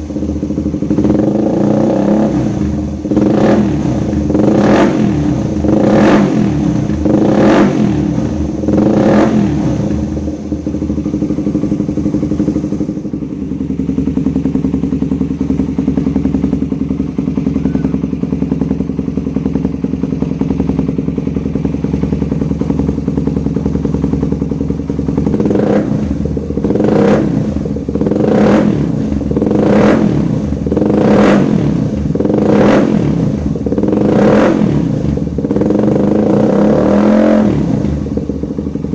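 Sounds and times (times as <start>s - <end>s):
motorcycle engine revving and idling: 0.0s - 38.9s.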